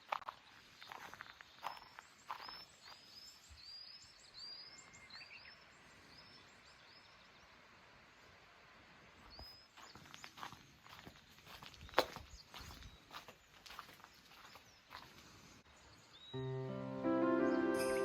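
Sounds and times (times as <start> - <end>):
faint footsteps or rustling: 0.0 - 3.6, 9.2 - 15.6.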